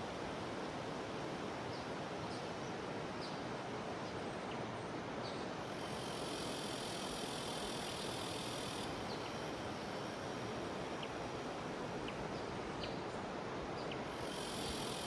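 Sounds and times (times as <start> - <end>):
cicadas buzzing: 5.5 - 12.8, 13.8 - 15.0.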